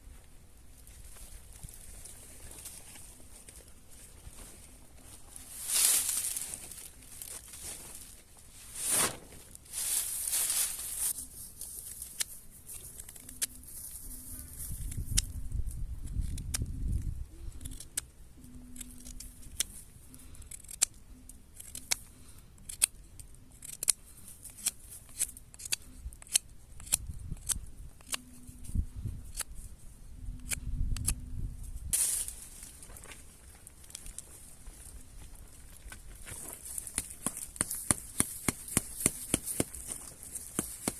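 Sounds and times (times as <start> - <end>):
rustling of cut brush: 0.0 - 18.0, 31.6 - 40.9
branches snipped and snapped: 11.9 - 13.6, 14.8 - 18.1, 21.6 - 23.0, 23.6 - 28.3, 31.9 - 34.3, 35.8 - 40.9.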